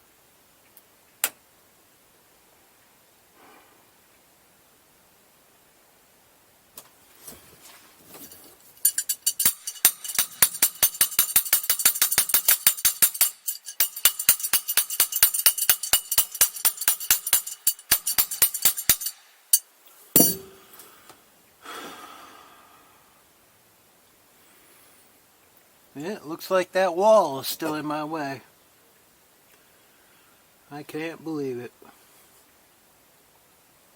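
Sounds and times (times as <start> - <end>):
socket ratchet clicking: 8.8 - 19.6
sharp metal clank: 8.8 - 20.8.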